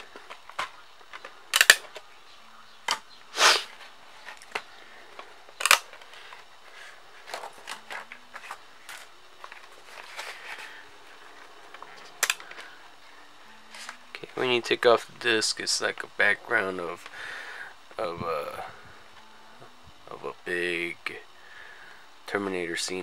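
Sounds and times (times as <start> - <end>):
plastic clicks and snaps: 0.1 - 2.0, 4.3 - 6.1, 11.8 - 12.7.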